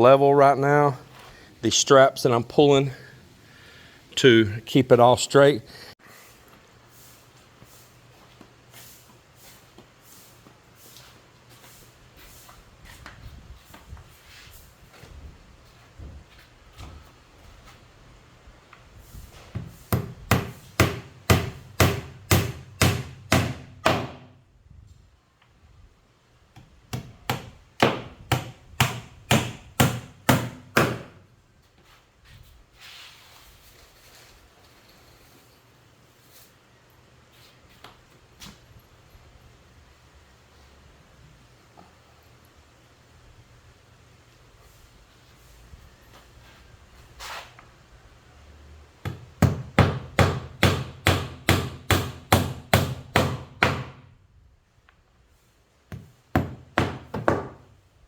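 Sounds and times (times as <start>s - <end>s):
hammer driving nail into wood: 19.6s - 24.3s, 26.9s - 31.2s, 49.1s - 54.0s, 55.9s - 57.6s.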